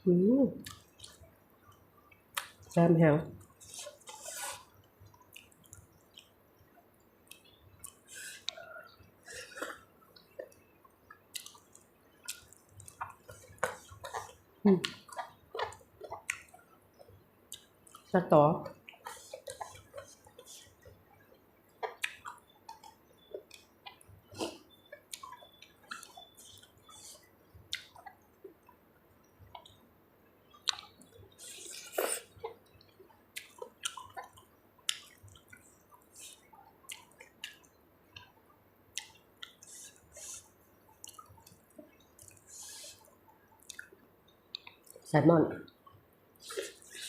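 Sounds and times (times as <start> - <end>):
lip smacks: 0.6 - 1.2, 10.4 - 16.6, 21.8 - 28.2, 30.5 - 38.3, 38.9 - 45.0
wet chewing: 0.6 - 2.6, 7.2 - 28.8, 29.4 - 29.8, 30.5 - 38.3, 38.9 - 45.0, 46.4 - 47.0
wet slurp: 3.6 - 4.7, 42.2 - 43.1, 46.4 - 47.0.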